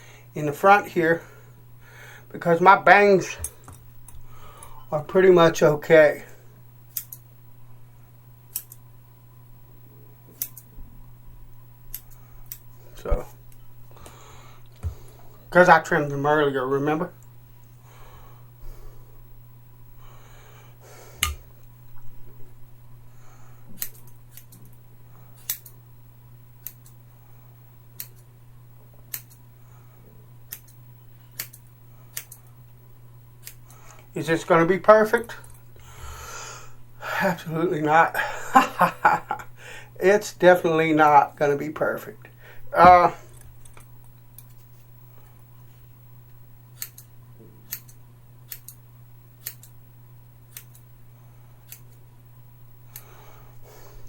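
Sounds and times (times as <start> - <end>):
steady low hum: 0.0 - 54.0
scissors snipping hair: 6.9 - 7.2, 8.5 - 8.8, 10.3 - 10.7, 11.9 - 12.6, 23.8 - 24.7, 25.4 - 25.8, 26.6 - 27.0, 28.0 - 28.2, 29.1 - 29.4, 30.5 - 30.8, 31.4 - 32.4, 33.4 - 33.8, 46.8 - 48.8, 49.4 - 49.8, 50.5 - 50.9, 51.7 - 52.0.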